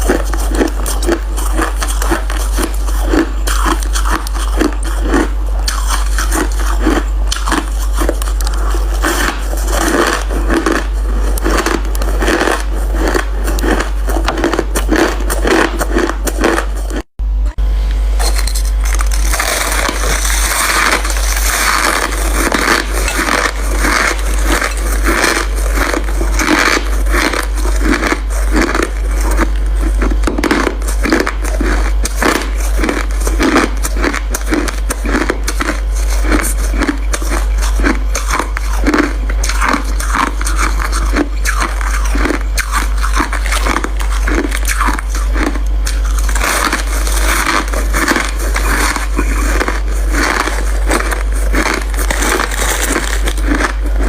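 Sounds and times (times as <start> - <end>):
crushed ice being chewed: 0.0 - 17.1, 18.2 - 54.0
steady low hum: 0.0 - 54.0.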